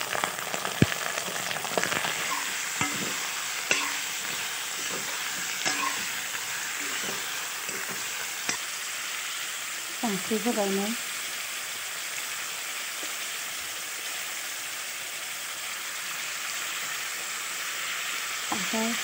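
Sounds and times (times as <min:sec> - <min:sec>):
pork sizzling in oil: 0:00.0 - 0:19.0
metal spoon scraping a wok: 0:01.8 - 0:08.7.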